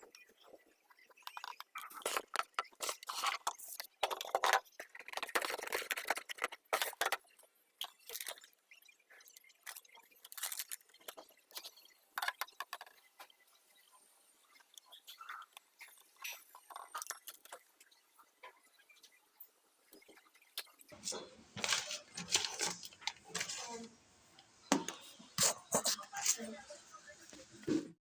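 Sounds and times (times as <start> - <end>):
plastic packaging crinkling: 1.3 - 7.2, 9.6 - 11.4, 21.6 - 23.9.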